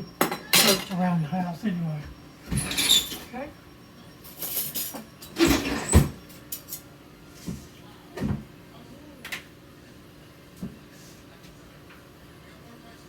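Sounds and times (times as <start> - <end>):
kitchen utensils clattering: 0.2 - 1.1, 2.5 - 3.3, 4.2 - 6.8.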